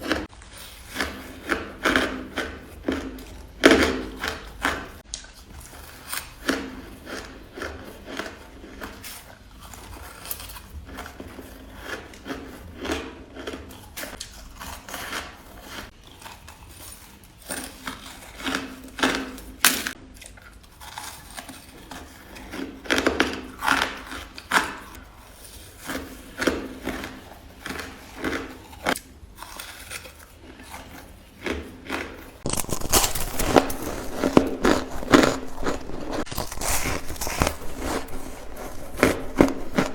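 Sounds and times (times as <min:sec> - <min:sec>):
ice crunched between teeth: 0:31.9 - 0:39.9.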